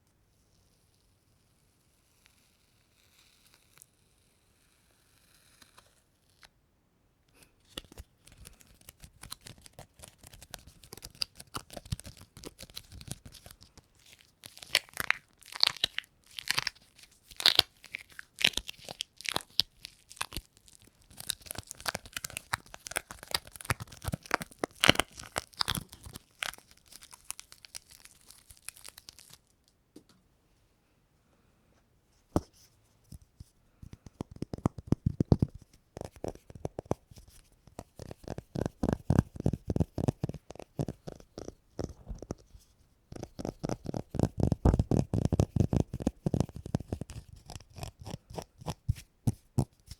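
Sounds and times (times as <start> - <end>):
sticky surface peeling crackle: 7.8 - 29.5, 34.4 - 42.5.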